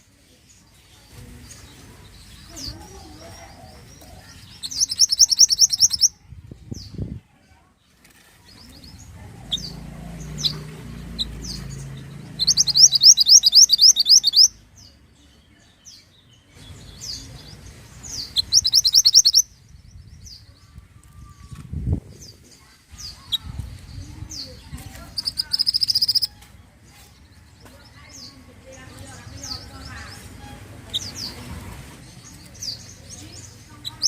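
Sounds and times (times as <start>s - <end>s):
songbird trills: 0.6s - 6.2s, 8.5s - 21.6s, 22.2s - 31.4s
high bird chirps: 4.3s - 6.2s, 9.0s - 15.0s, 16.8s - 20.5s, 23.0s - 26.5s.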